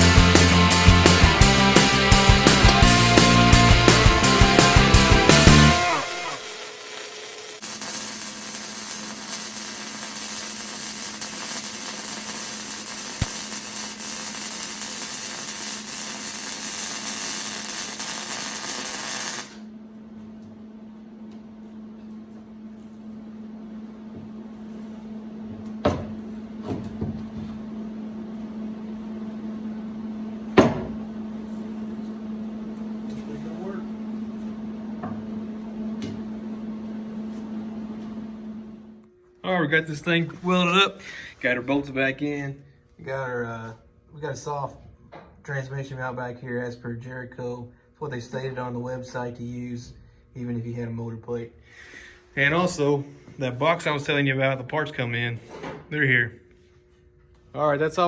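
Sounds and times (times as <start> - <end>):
welder running a bead: 0.0 - 19.7.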